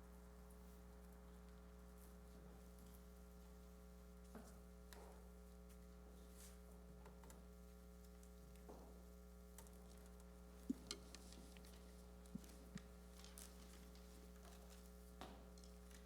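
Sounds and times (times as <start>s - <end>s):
faint clicks and knocks: 7.0s - 16.0s.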